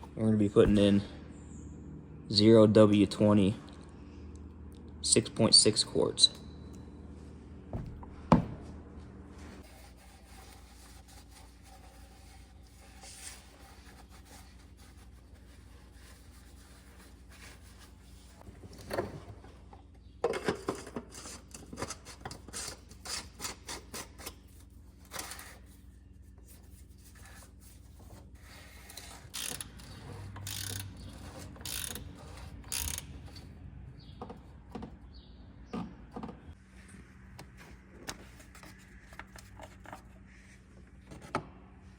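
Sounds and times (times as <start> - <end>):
parts and containers being handled: 9.4 - 41.6.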